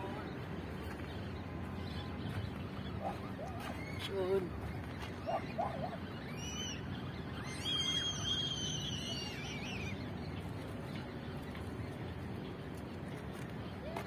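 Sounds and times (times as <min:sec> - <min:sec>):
bird chirping and calling: 0:00.0 - 0:12.6
low outdoor rumble: 0:00.0 - 0:14.0.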